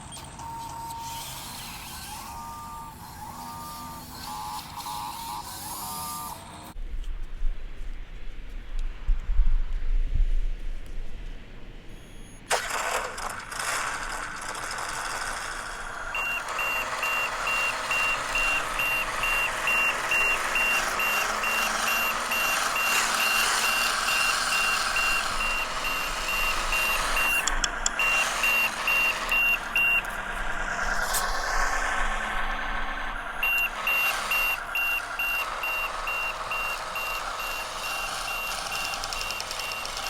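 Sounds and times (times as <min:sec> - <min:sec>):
truck engine starting: 0:12.2 - 0:40.0
high reversing beeper: 0:15.9 - 0:40.0.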